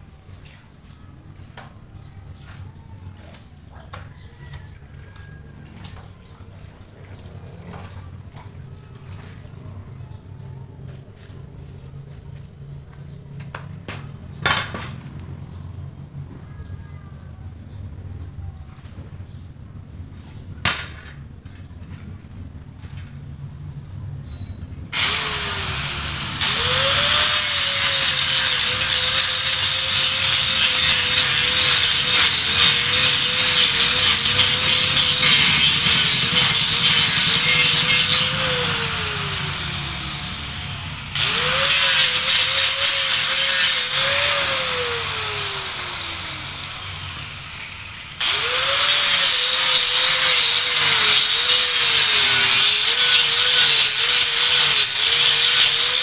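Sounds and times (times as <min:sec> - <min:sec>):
grinder working metal: 0:24.9 - 0:56.0.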